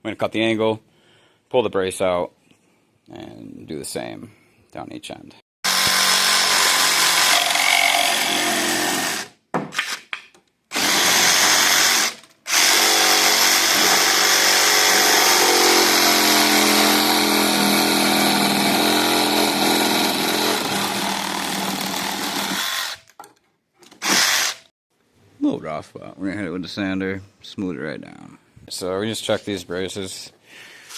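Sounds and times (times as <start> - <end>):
power saw cutting wood: 5.6 - 9.3, 10.7 - 23.1, 24.0 - 24.6.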